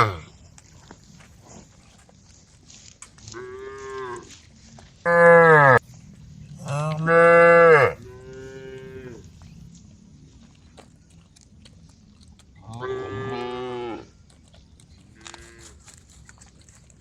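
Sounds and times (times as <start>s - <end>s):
cattle mooing: 0.0s - 0.2s, 5.1s - 5.8s, 6.6s - 9.3s, 12.6s - 14.1s.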